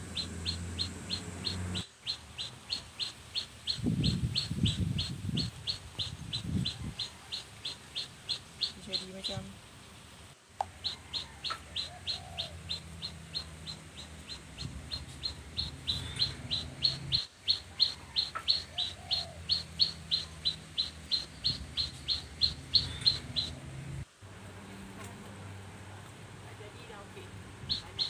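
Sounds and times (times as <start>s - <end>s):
bird chirping: 0.0s - 9.5s, 10.6s - 24.0s, 26.7s - 28.0s.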